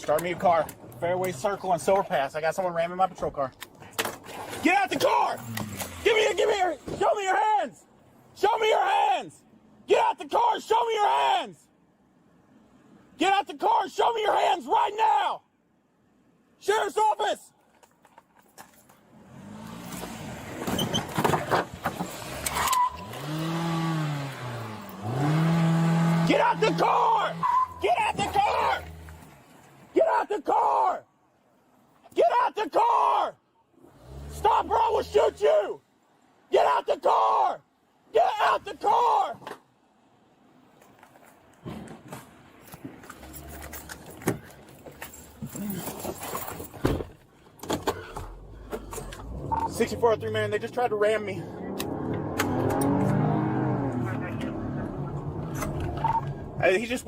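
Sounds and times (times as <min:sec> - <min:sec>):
car engine revving hard: 0:22.2 - 0:27.6, 0:33.8 - 0:35.2, 0:51.5 - 0:55.8
car engine rumble: 0:42.9 - 0:57.0.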